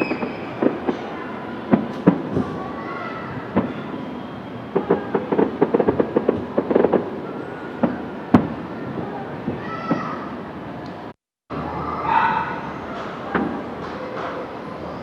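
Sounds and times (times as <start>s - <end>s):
crackling fireworks pops: 0.0s - 10.3s
distant fireworks bangs: 0.0s - 10.6s.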